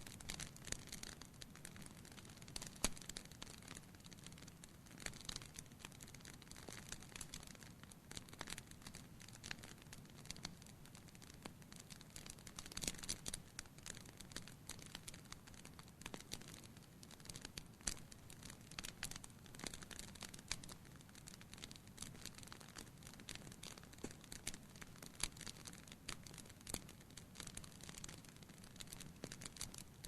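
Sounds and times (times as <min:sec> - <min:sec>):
wood fire pops and snaps: 0:18.8 - 0:29.8.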